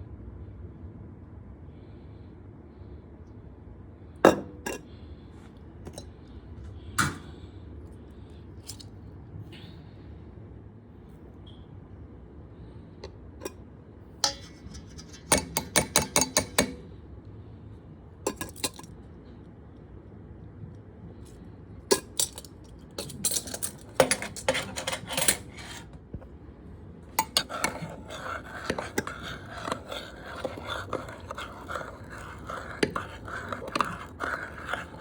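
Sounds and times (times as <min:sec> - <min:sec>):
dishes and utensils clinking: 0:14.2 - 0:16.8, 0:21.9 - 0:25.9, 0:27.2 - 0:35.0.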